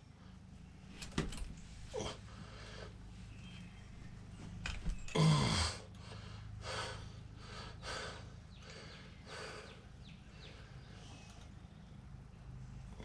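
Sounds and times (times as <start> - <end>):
steady low hum: 0.0 - 13.0
person breathing hard: 1.9 - 3.2, 5.3 - 11.2
person grunting with effort: 5.1 - 5.9.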